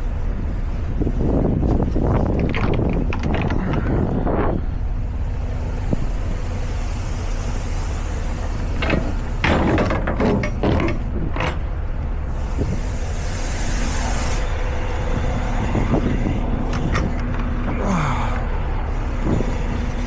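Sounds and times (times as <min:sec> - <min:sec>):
road rumble: 0:00.0 - 0:20.0
truck engine drone: 0:00.0 - 0:20.0
sharp rattles or knocks: 0:08.6 - 0:12.4.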